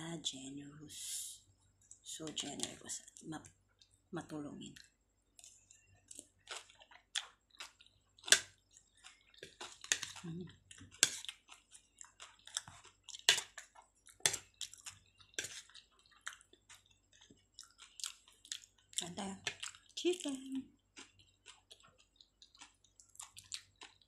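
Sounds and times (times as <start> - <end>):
wet chewing mouth clicks: 21.0 - 24.0.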